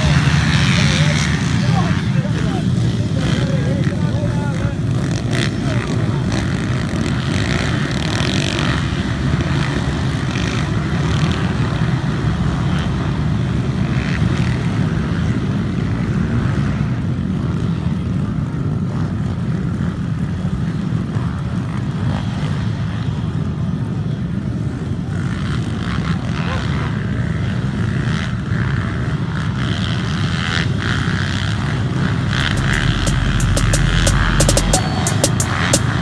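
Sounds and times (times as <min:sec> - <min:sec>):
mini bike engines rumbling: 0:00.0 - 0:32.4
high engine whines: 0:32.2 - 0:36.0.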